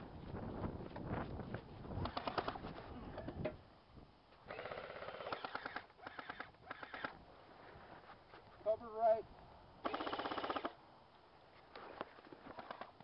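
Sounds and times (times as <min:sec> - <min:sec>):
airsoft guns firing rapid bursts: 0:02.0 - 0:02.6, 0:04.5 - 0:07.1, 0:09.8 - 0:10.8.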